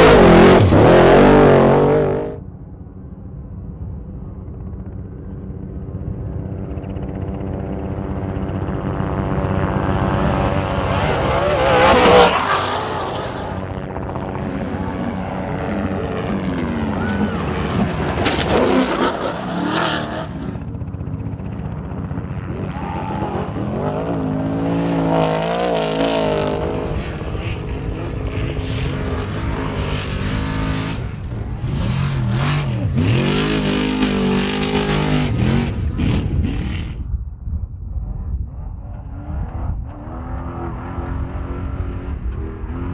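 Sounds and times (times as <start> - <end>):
race truck engines revving: 0.0 - 2.4, 8.5 - 20.8, 21.8 - 37.0, 38.6 - 42.9.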